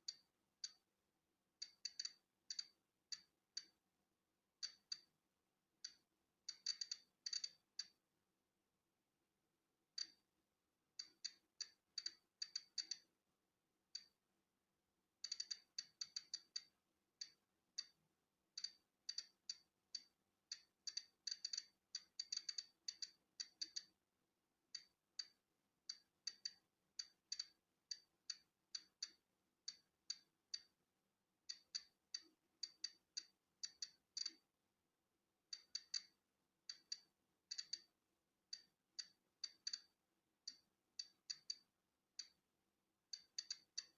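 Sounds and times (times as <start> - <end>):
geiger counter clicking: 1.6 - 3.8, 4.6 - 5.1, 5.8 - 8.0, 10.0 - 10.2, 11.0 - 13.1, 15.2 - 18.0, 18.6 - 23.9, 24.8 - 30.8, 31.5 - 34.4, 35.5 - 37.9, 38.5 - 42.4, 43.1 - 43.9.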